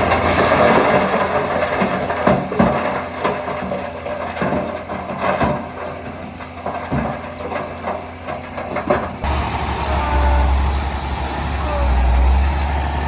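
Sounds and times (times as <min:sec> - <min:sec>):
heavy diesel engine running: 0:08.0 - 0:13.0.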